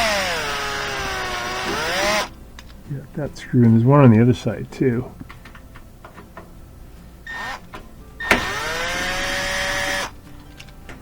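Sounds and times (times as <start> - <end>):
cordless drill motor whining: 0.0 - 2.3, 7.3 - 10.2.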